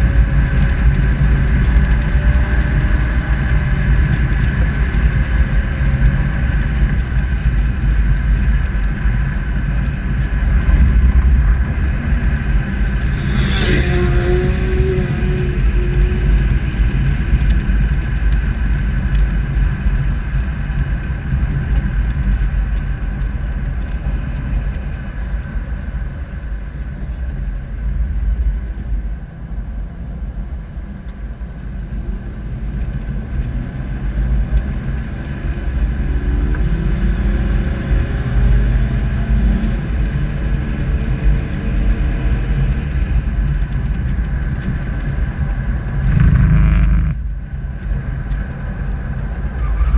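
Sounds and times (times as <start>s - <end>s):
suv engine and tyres rumbling: 0.0s - 49.9s
engine note climbing in pitch: 12.8s - 17.2s, 46.0s - 47.3s.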